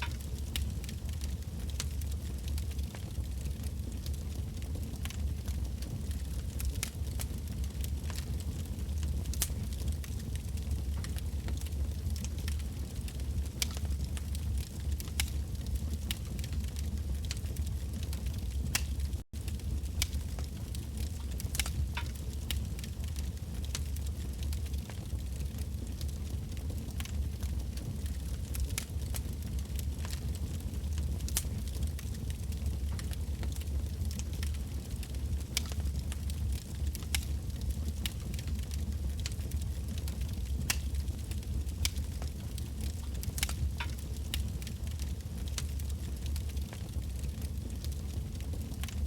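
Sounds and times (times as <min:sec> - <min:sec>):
bonfire crackling and popping: 0:00.0 - 0:49.0.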